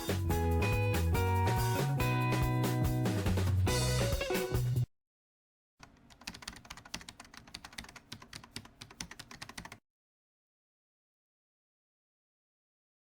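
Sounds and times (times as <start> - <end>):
keyboard typing: 5.8 - 9.8.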